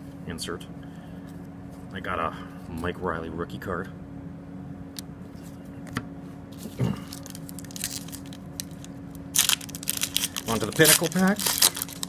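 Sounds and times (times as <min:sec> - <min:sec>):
room hum: 0:00.0 - 0:12.0
cards handled clicking and rustling: 0:06.6 - 0:12.0
wrapper crinkling: 0:06.6 - 0:12.0.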